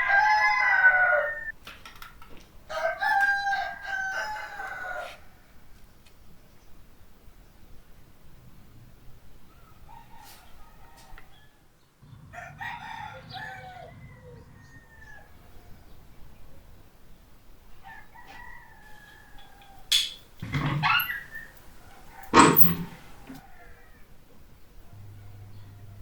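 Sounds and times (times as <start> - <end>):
rooster crowing: 0.0 - 1.6, 2.7 - 5.4, 12.2 - 16.0, 17.8 - 19.9, 20.6 - 24.2.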